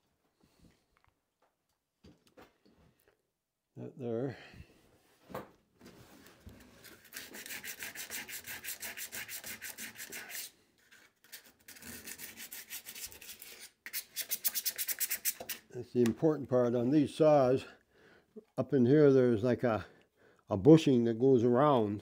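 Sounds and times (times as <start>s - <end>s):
scrubbing rusted metal: 7.0s - 10.5s.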